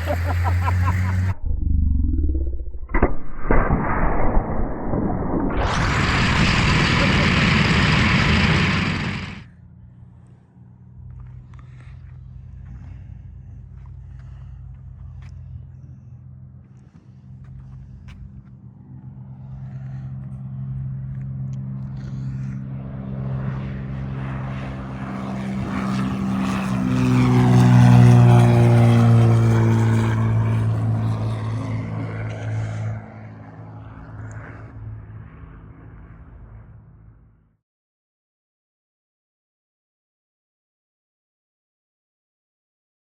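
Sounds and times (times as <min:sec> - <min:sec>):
low droning rumble: 0:00.0 - 0:18.4.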